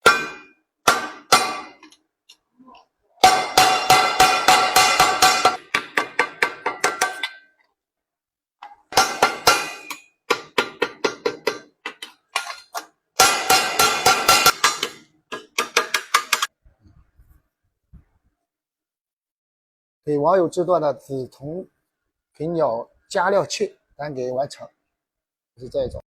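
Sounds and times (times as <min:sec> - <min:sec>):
hammer striking sheet metal: 0:00.0 - 0:01.9, 0:03.2 - 0:07.5, 0:08.9 - 0:12.6, 0:13.2 - 0:16.5.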